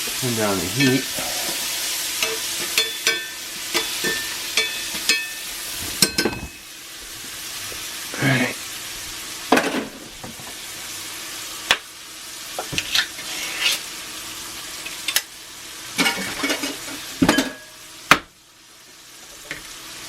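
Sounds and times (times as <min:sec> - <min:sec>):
food sizzling in a pan: 0:00.0 - 0:20.0
utensil scraping a pan: 0:12.6 - 0:13.9.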